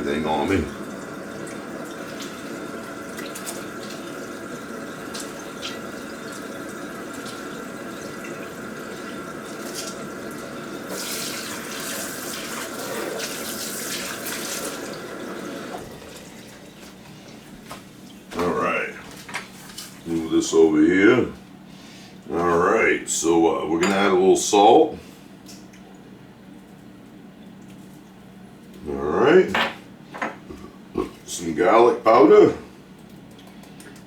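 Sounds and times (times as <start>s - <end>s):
faucet running: 0.0s - 18.4s
hands washing under water: 1.6s - 20.3s.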